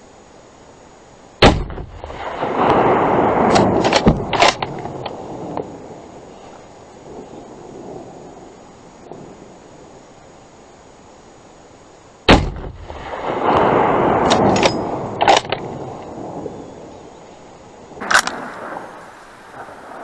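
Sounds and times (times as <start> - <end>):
weaker sharp crack: 1.4 - 2.8, 12.3 - 15.7, 18.0 - 20.0
rifle shot: 1.4 - 5.0, 12.3 - 15.7, 18.0 - 20.0
sharp clicks: 18.0 - 19.7
long rolling rumble: 18.0 - 20.0.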